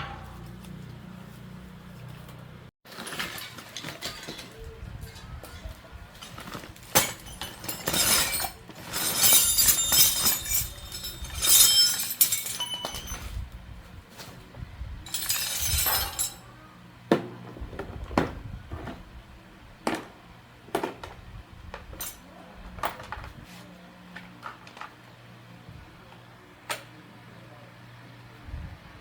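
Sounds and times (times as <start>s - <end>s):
hard objects clinking and knocking: 2.9s - 13.4s, 15.1s - 16.4s.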